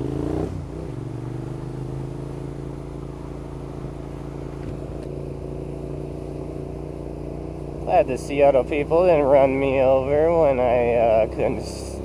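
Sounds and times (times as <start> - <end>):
motorcycle engine idling: 0.9 - 12.0
person speaking: 7.9 - 12.0.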